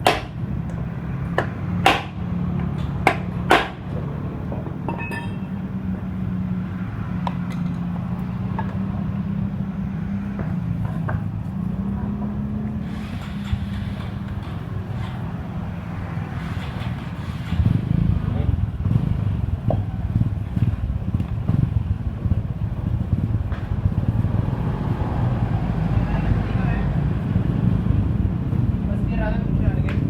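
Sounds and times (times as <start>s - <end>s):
low engine hum: 0.0s - 30.0s
metal tool clinks and knocks: 4.9s - 5.6s
short metal ring: 4.9s - 5.7s.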